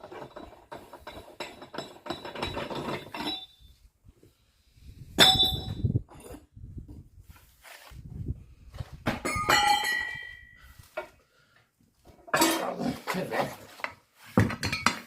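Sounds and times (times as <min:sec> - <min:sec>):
metal tools clattering: 0:00.0 - 0:03.6, 0:09.2 - 0:10.6, 0:12.3 - 0:15.0
ringing metal hit: 0:09.3 - 0:10.6.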